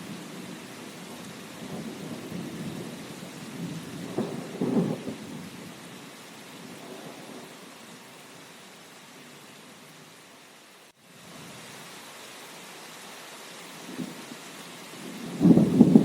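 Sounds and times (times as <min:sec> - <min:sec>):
steady rain: 0:00.0 - 0:16.0
low rolling thunder: 0:01.6 - 0:05.6, 0:15.0 - 0:16.0.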